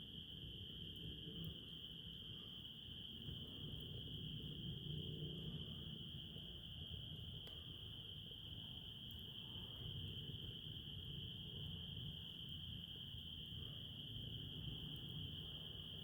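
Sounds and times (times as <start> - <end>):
crickets trilling: 0.0 - 16.0
faint ticks: 7.4 - 7.7.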